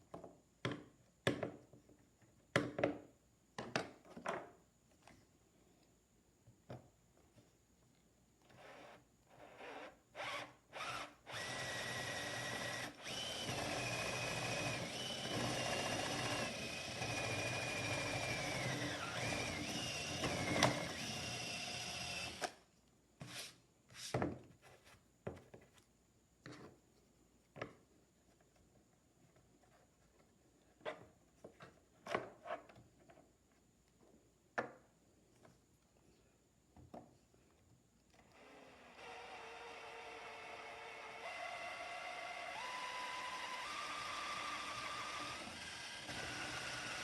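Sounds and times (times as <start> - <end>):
power drill motor whine: 8.5 - 22.6, 38.3 - 47.0.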